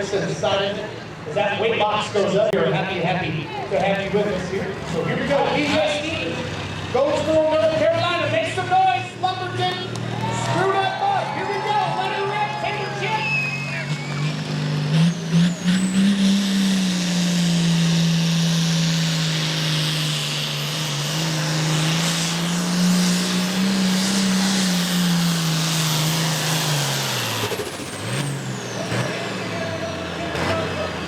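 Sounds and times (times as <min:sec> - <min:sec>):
tractor diesel engine high-revving: 0:03.8 - 0:31.0.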